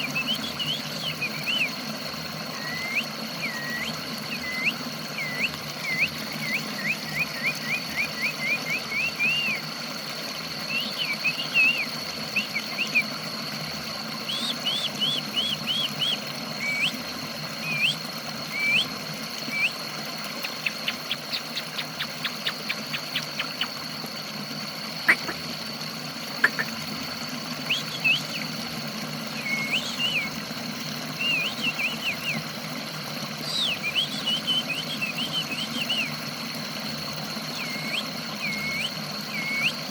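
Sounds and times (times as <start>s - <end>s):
steady high whine: 0.0s - 39.9s
songbird chirping: 19.5s - 23.8s, 27.6s - 28.5s, 29.4s - 30.4s.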